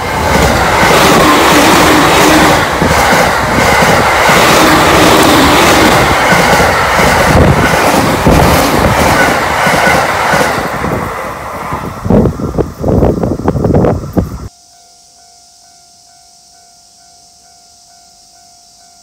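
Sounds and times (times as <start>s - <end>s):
wheels knocking on rails: 0.0s - 10.9s
electric train passing: 0.0s - 14.5s.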